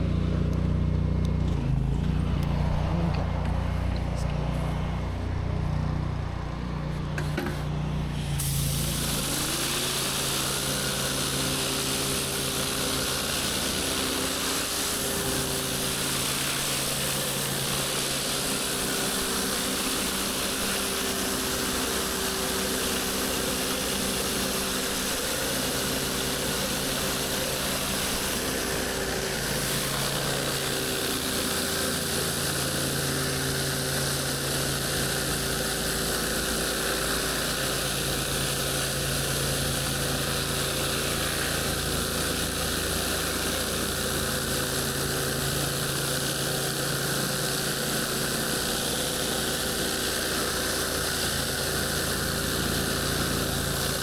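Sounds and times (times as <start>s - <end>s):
pressure washer engine running: 0.0s - 54.0s
water spraying onto concrete: 1.4s - 54.0s.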